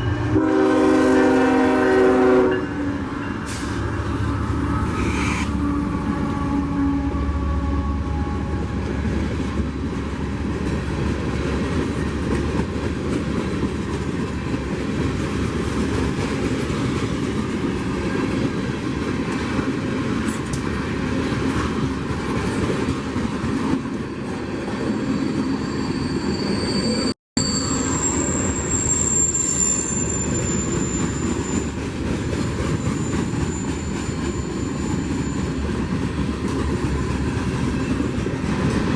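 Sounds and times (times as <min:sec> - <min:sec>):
freight train rumbling past: 0:00.0 - 0:38.9
high wheel squeal: 0:03.3 - 0:08.6, 0:24.8 - 0:35.7.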